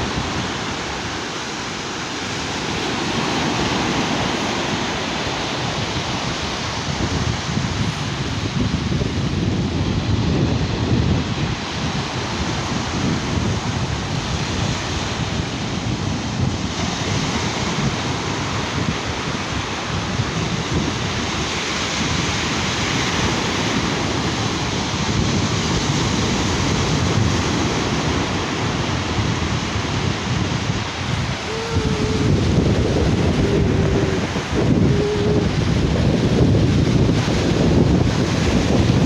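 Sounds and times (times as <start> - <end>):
waves washing onto beach: 0.0 - 39.0
wind buffeting microphone: 0.0 - 39.0.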